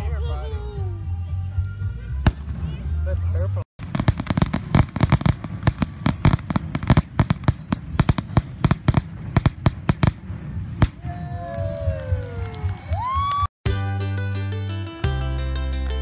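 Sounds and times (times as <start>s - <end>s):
fireworks bangs and crackles: 2.2s - 13.4s.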